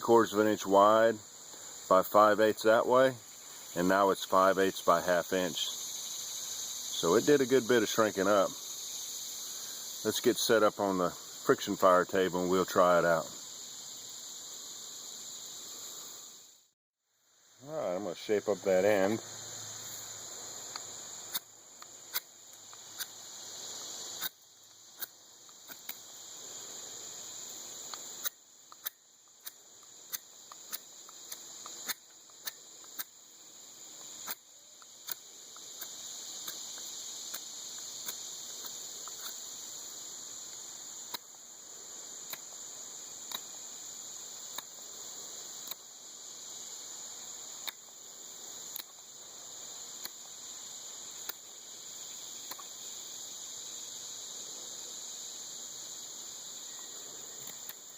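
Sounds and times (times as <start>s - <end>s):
insects chirring: 0.0s - 57.9s
knife carving wood: 20.7s - 23.2s, 24.1s - 26.1s, 34.0s - 39.5s.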